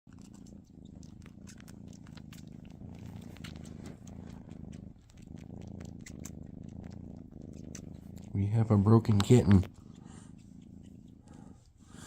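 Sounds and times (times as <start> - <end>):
kitten purring: 0.0 - 12.0
wet sucking clicks: 0.2 - 8.3.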